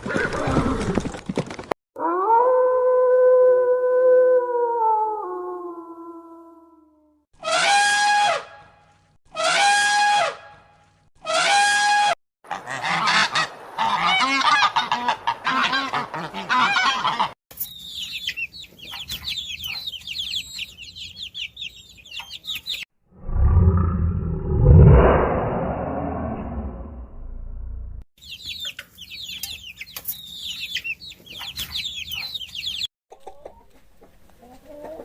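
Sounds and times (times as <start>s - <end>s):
waterfowl honking: 11.2s - 17.4s
birds twittering: 17.6s - 22.8s, 28.2s - 32.9s
loud low sound: 23.1s - 28.0s.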